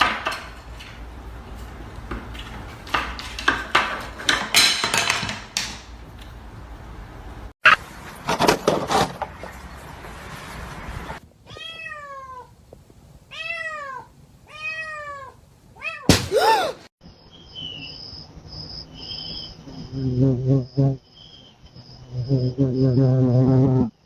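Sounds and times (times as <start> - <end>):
cat meowing: 11.4 - 12.6, 13.3 - 16.1
sharp knock: 16.1 - 16.4.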